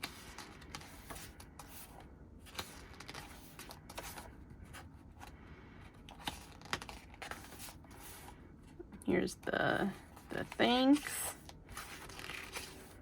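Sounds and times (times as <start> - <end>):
pages turning: 0.0 - 4.9, 6.1 - 8.4, 10.2 - 13.0.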